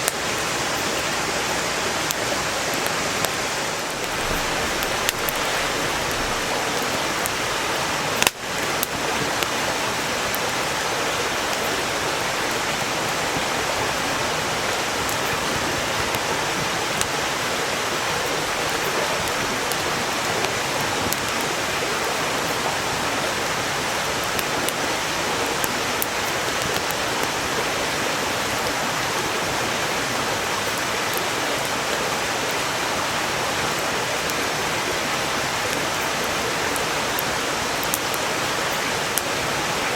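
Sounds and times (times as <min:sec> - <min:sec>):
stream flowing: 0:00.0 - 0:39.9
firewood crackling: 0:02.1 - 0:10.5, 0:35.5 - 0:39.4.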